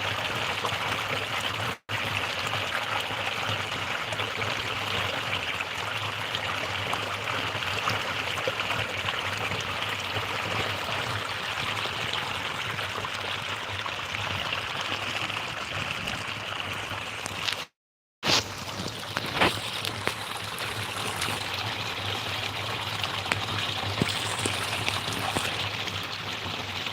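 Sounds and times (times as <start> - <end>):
sharp crackle: 18.2 - 21.6, 23.9 - 25.7
running water rushing: 18.5 - 26.9.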